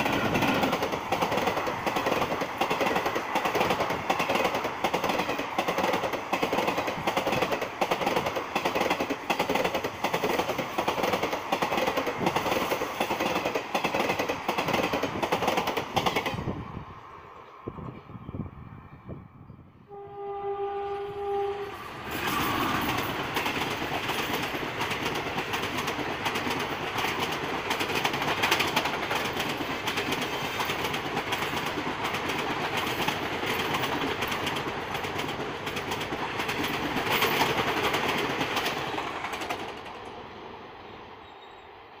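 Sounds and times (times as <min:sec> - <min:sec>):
train rushing past: 0:00.0 - 0:42.0
locomotive horn: 0:19.8 - 0:22.0.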